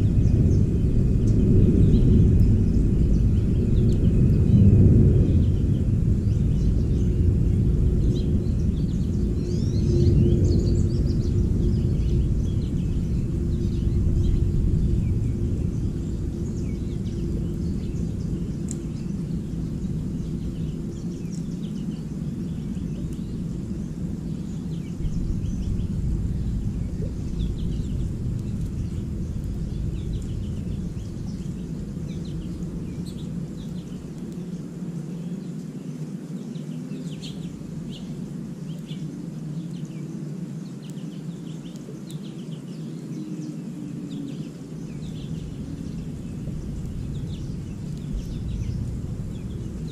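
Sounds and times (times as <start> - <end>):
low rumble: 0.0 - 34.4, 44.9 - 49.9
songbirds chirping: 0.0 - 49.9.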